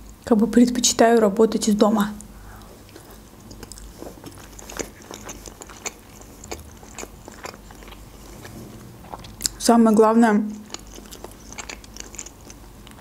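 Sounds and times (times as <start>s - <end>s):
wet chewing clicks and smacks: 2.2s - 9.6s, 10.5s - 13.0s.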